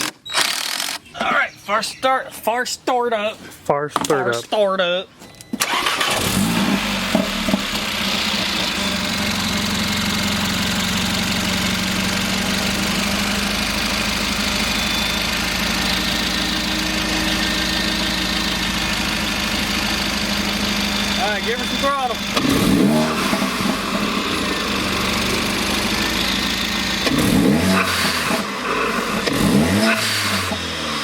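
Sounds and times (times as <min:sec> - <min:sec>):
car engine idling: 0:05.6 - 0:31.0.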